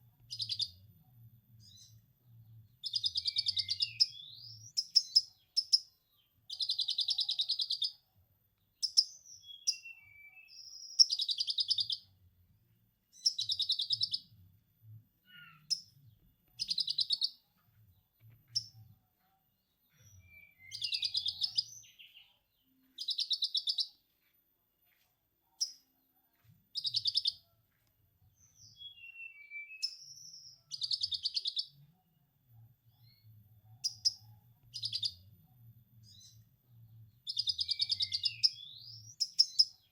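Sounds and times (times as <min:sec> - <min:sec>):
songbird chattering: 0:16.6 - 0:17.4, 0:20.3 - 0:22.2, 0:23.0 - 0:23.9.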